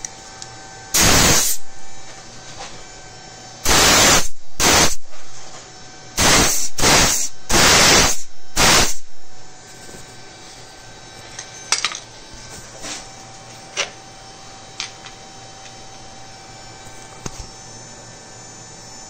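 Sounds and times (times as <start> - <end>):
short hissing bursts: 1.0 - 1.6, 3.6 - 5.0, 6.2 - 9.1.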